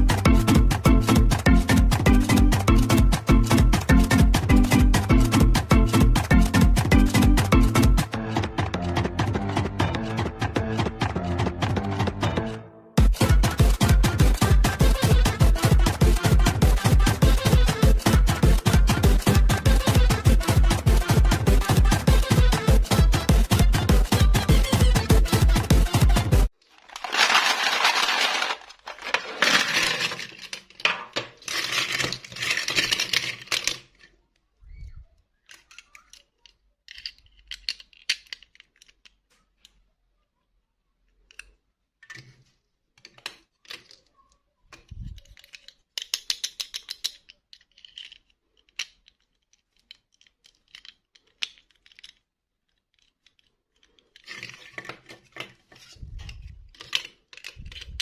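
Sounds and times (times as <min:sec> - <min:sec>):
plastic objects clicking and clattering: 0:13.2 - 0:39.8, 0:41.1 - 0:58.0.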